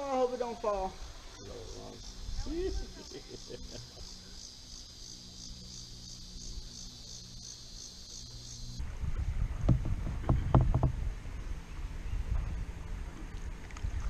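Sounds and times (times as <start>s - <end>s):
high pulsing buzz: 0.0s - 14.0s
wind on microphone: 8.8s - 14.0s
kayak paddle strokes splashing: 12.8s - 14.0s.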